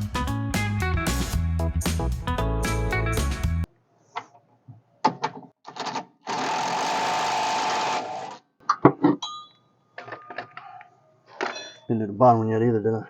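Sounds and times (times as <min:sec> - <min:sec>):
power tool driving fastener: 0:05.7 - 0:08.4.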